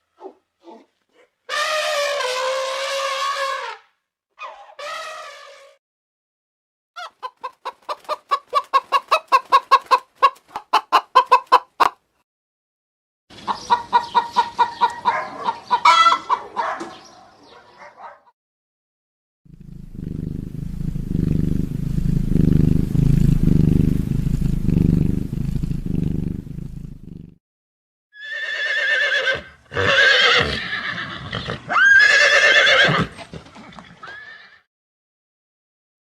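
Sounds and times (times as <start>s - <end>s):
low pulsing rumble: 19.5s - 27.1s
horse neighing: 28.2s - 33.2s, 33.9s - 34.6s.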